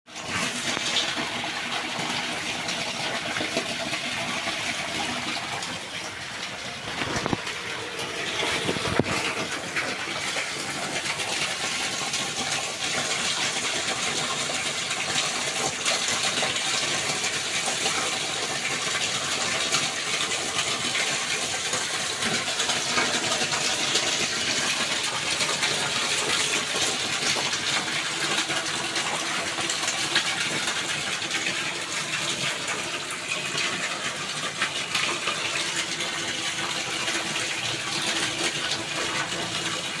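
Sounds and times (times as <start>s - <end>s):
water splashing and gushing: 0.1s - 40.0s.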